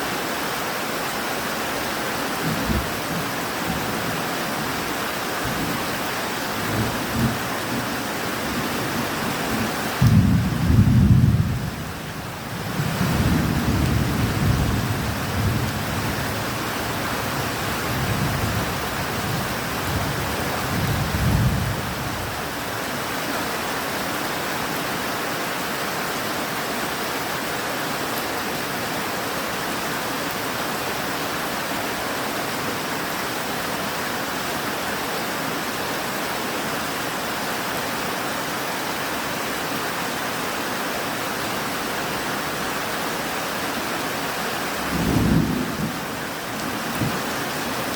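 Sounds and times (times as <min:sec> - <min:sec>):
steady rain: 0:00.0 - 0:47.9
thunder rumbling: 0:09.5 - 0:11.8, 0:44.9 - 0:47.5.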